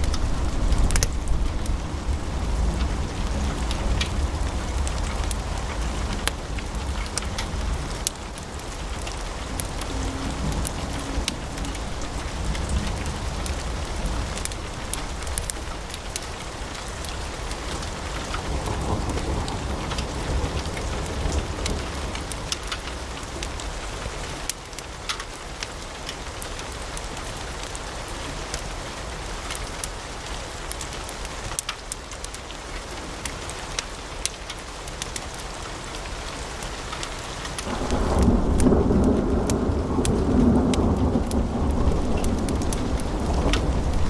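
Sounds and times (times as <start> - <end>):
logs crackling and popping: 0.0 - 27.8, 30.6 - 44.0
fire flame rush: 11.2 - 18.4.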